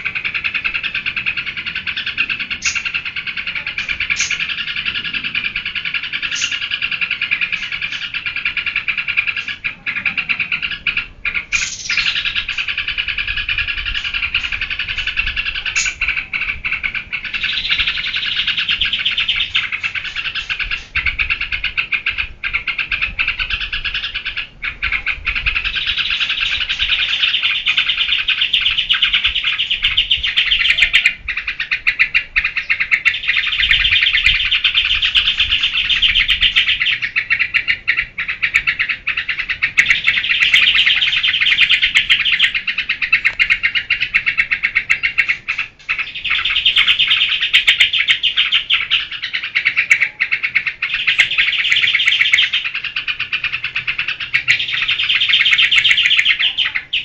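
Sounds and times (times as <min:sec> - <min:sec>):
bird chattering calls: 0:00.0 - 0:57.0.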